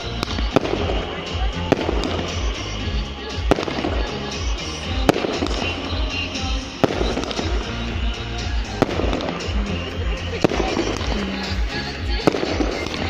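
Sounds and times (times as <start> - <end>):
firework bangs: 0.0 - 13.0
fireworks crackling and popping: 0.0 - 13.0
music with steady beat: 0.0 - 13.0.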